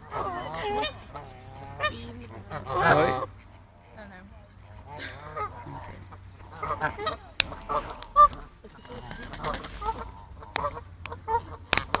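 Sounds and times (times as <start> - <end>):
geese honking: 0.0 - 12.0
sharp clicks: 10.5 - 12.0.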